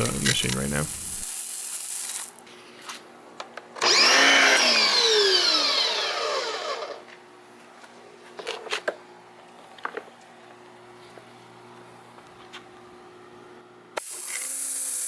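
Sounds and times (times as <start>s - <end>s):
pressure washer motor whirring: 0.0s - 1.3s, 3.8s - 7.0s.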